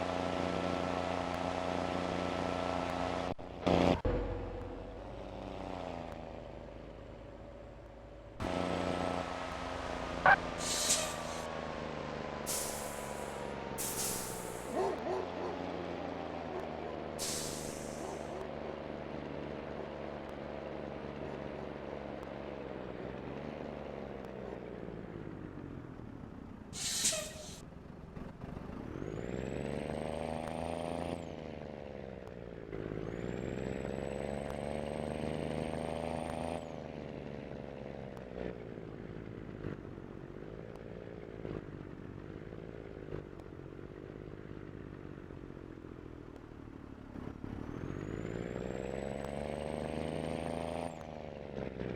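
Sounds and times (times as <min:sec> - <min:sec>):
truck diesel engine: 0:00.0 - 0:51.9
hiss of air: 0:10.6 - 0:11.5, 0:12.5 - 0:14.7, 0:17.2 - 0:18.1, 0:26.8 - 0:27.6.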